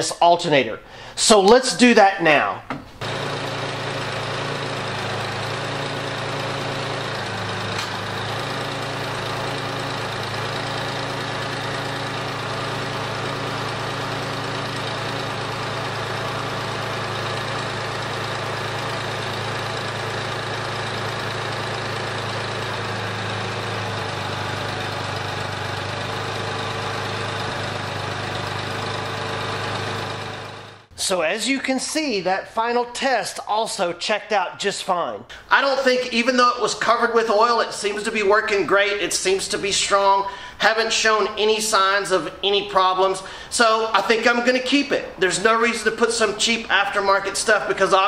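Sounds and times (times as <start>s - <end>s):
car engine idling: 3.0s - 30.9s.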